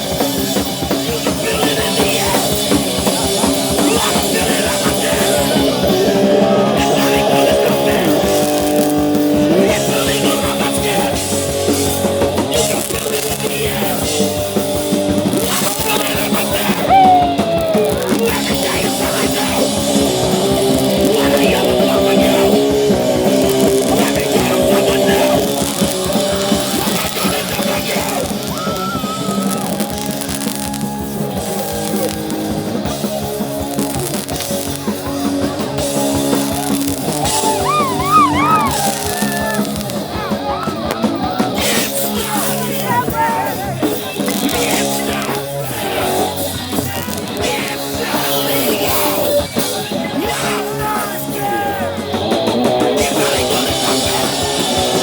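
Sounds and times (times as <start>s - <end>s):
bass guitar: 0.0s - 55.0s
distorted electric guitar: 0.0s - 55.0s
drums: 0.0s - 55.0s
person yelling vocals: 15.7s - 19.8s, 36.6s - 40.7s.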